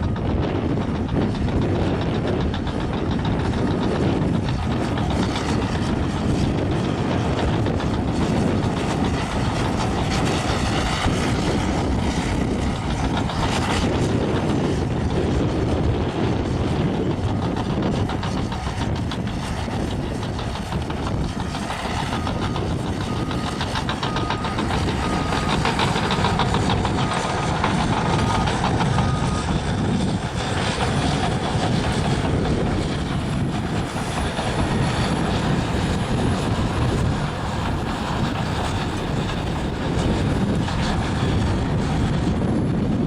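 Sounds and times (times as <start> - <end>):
diesel engine running: 0.0 - 43.0
steel tracks clattering: 0.0 - 43.0.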